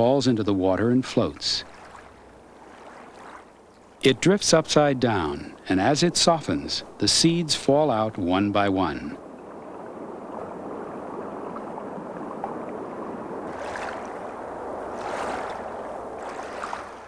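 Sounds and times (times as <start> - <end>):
pond water lapping: 0.0 - 17.0
water swishes: 0.0 - 17.0.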